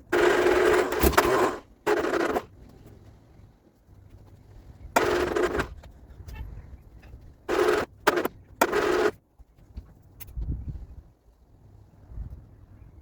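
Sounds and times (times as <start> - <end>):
starter motor cranking engine: 0.0 - 2.5, 5.0 - 5.7, 7.5 - 9.1.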